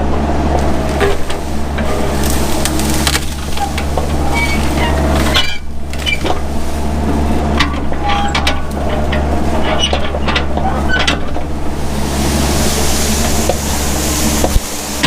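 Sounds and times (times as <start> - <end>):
excavator engine running: 0.0 - 15.0
sharp cracks and knocks: 2.1 - 4.6.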